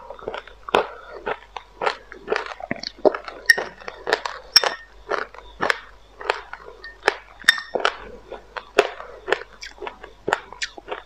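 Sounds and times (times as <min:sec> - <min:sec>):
crunchy chewing: 0:00.0 - 0:11.0
metal spoon clinking glass bowl: 0:03.5 - 0:03.8, 0:04.6 - 0:04.9, 0:06.8 - 0:07.8.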